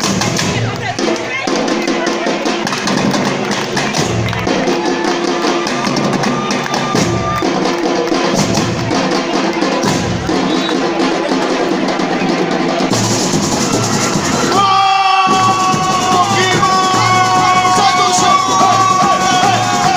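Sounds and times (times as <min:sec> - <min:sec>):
fast percussion strokes: 0:00.0 - 0:19.9
deep bass drum beats: 0:05.6 - 0:19.9.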